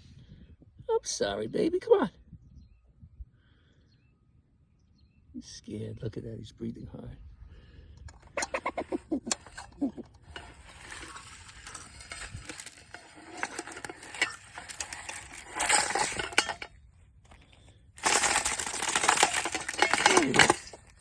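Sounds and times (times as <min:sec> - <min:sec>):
bird feeder rattling and clinking: 0:08.1 - 0:16.7, 0:18.0 - 0:21.0.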